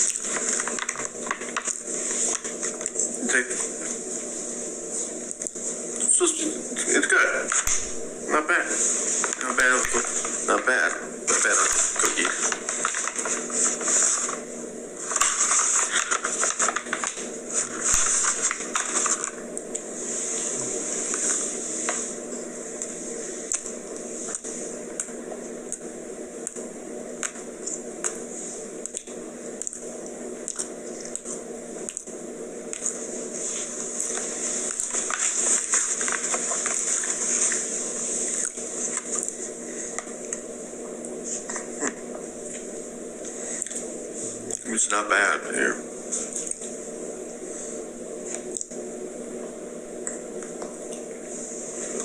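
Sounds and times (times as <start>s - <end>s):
steady hum and hiss: 0.0s - 52.0s
chewing a cookie: 28.8s - 32.1s.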